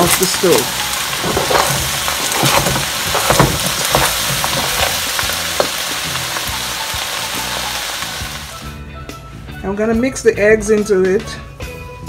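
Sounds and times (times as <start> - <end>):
utensil scraping a pot: 0.0 - 8.5
rice sizzling in a pot: 0.0 - 8.8.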